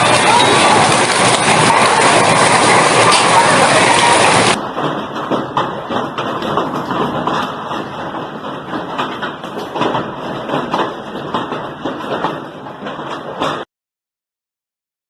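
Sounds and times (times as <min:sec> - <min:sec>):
hailstones clattering: 0:00.0 - 0:04.6
rush of falling ice and rain: 0:00.0 - 0:04.6.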